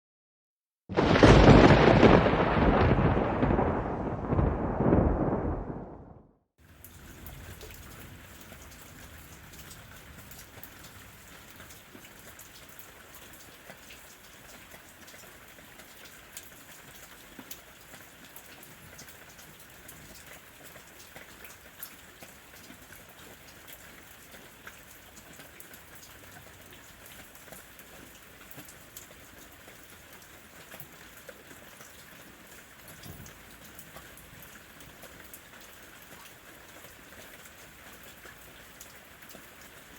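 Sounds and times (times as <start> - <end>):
rain falling: 0.9 - 39.9.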